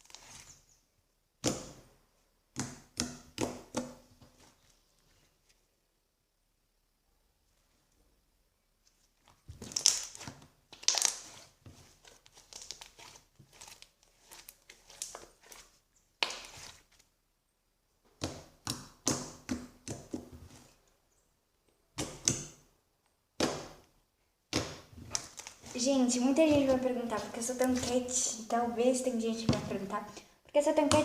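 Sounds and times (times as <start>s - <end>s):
slime crackling and popping: 9.6s - 11.5s.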